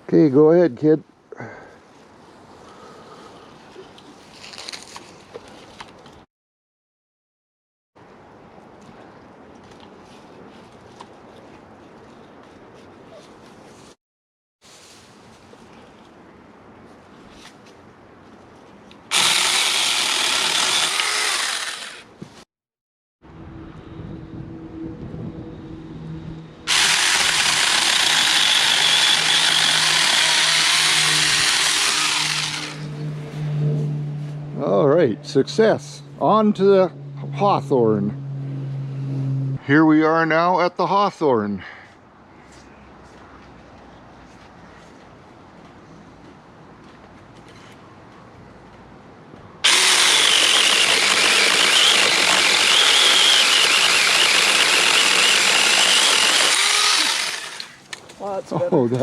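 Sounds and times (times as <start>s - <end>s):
electric chainsaw cutting limb: 19.1s - 22.1s, 26.7s - 33.1s, 49.6s - 58.0s.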